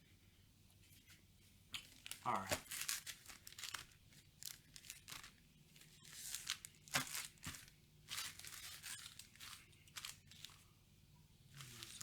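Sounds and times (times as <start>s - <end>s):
foil wrappers tearing and crinkling: 1.8s - 10.6s, 11.5s - 12.0s.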